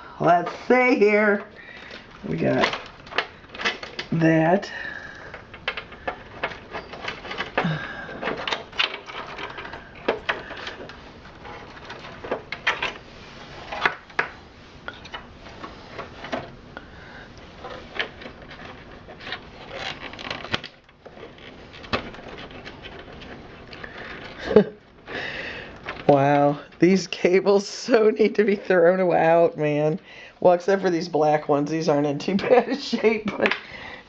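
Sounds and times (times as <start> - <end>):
plastic connectors clicking and rattling: 1.4 - 4.2, 5.0 - 13.0, 17.6 - 26.2.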